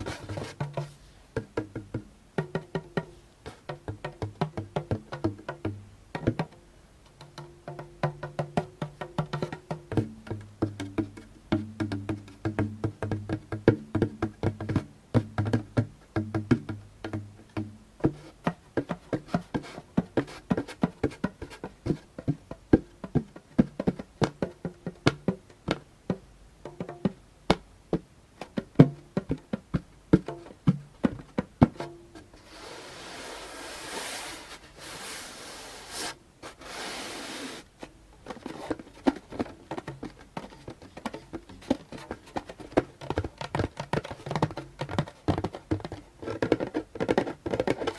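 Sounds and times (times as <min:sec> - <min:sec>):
scratching on drumhead: 0:00.0 - 0:01.3, 0:18.0 - 0:25.3, 0:28.4 - 0:47.9
hands tapping on a hand drum: 0:00.0 - 0:32.4, 0:37.8 - 0:47.9.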